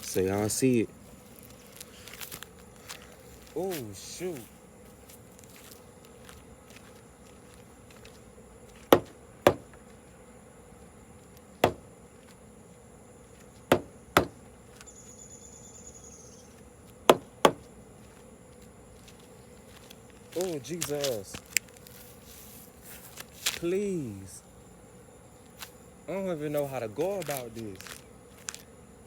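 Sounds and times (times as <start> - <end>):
high-pitched insect-like drone: 0.0 - 10.3, 11.1 - 24.6, 25.4 - 29.0
sharp knocks: 8.9 - 9.8, 11.6 - 11.8, 13.7 - 14.4, 17.1 - 17.6.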